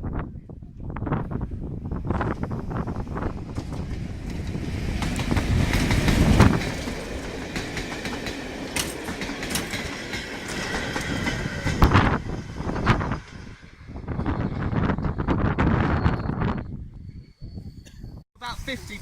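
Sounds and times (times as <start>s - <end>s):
wheels clattering over rail joints: 3.4s - 12.0s
faint high wheel squeal: 14.0s - 18.2s.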